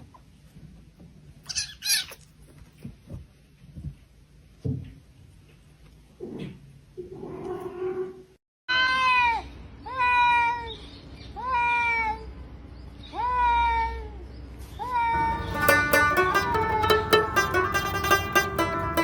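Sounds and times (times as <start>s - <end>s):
cat meowing: 1.5s - 2.2s.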